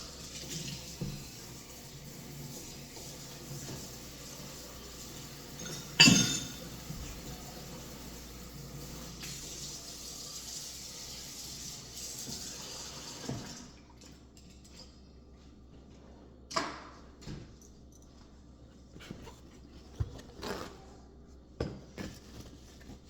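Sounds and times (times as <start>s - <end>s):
water running from tap: 0.0s - 13.8s.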